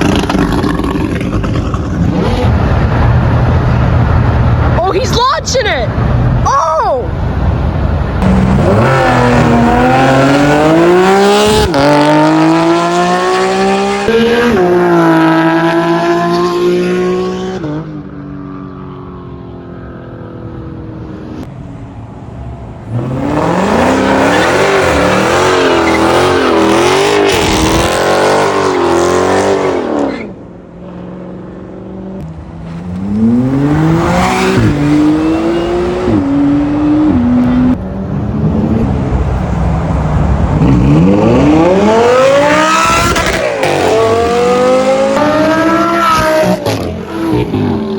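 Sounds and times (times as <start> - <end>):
car engine revving at full throttle: 0.0 - 4.8, 7.8 - 18.2, 22.8 - 30.6, 31.2 - 47.9
rapidly rising and falling revs: 8.2 - 18.0, 22.9 - 30.4, 32.2 - 39.3, 40.4 - 47.9
car accelerating hard: 8.2 - 18.1, 22.9 - 30.4, 31.8 - 47.9.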